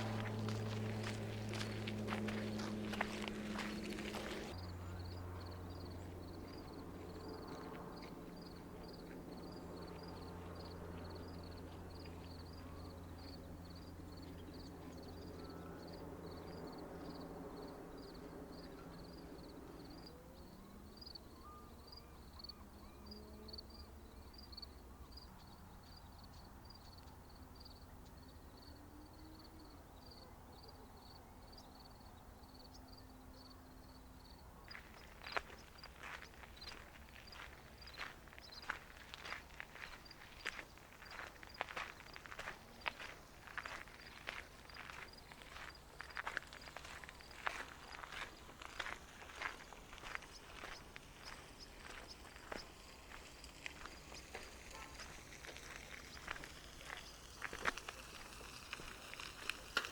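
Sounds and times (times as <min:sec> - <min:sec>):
low hum: 0:00.0 - 0:19.8
cricket chirping: 0:04.5 - 0:22.6, 0:23.5 - 0:54.5.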